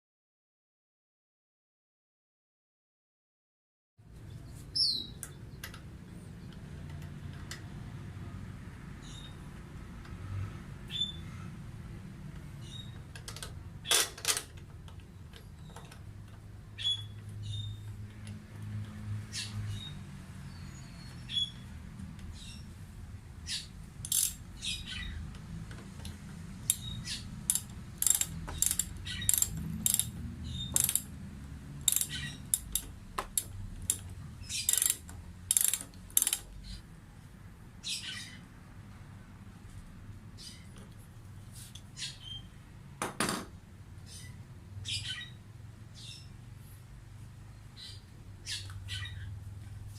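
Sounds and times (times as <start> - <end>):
clicks of small parts handled: 24.0 - 24.4, 27.5 - 31.1, 31.8 - 36.5.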